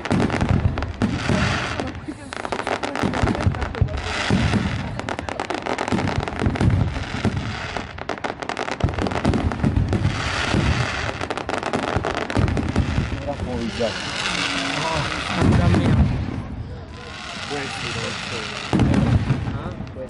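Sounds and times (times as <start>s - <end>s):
heavier firecracker bangs: 0.0s - 16.6s, 17.3s - 20.0s
firecrackers crackling: 0.0s - 20.0s.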